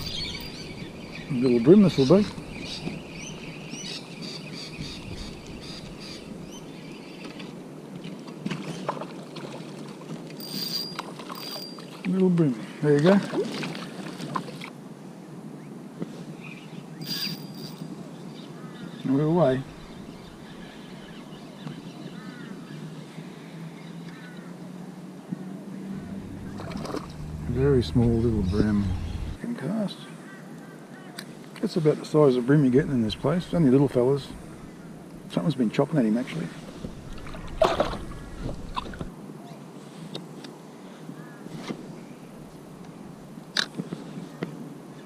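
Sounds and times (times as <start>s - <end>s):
bird harsh calls: 0.0s - 6.6s, 25.9s - 29.4s
water splashing and sloshing: 7.3s - 12.2s, 13.0s - 14.8s, 25.9s - 29.4s, 36.5s - 39.1s
faint low hum: 25.8s - 29.4s.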